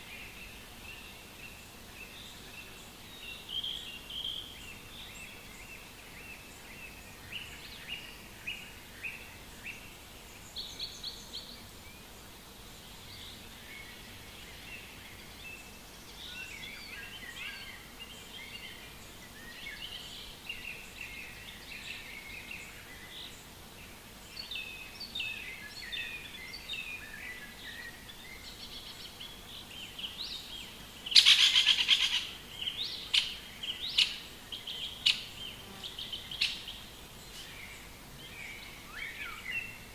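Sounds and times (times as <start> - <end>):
songbirds chirping and warbling: 0.0 - 39.9
sharp bird calls: 31.1 - 39.8.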